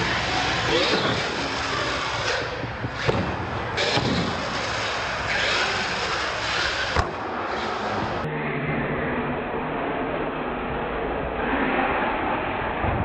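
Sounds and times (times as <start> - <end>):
toy truck drivetrain and tyres: 0.0 - 8.3.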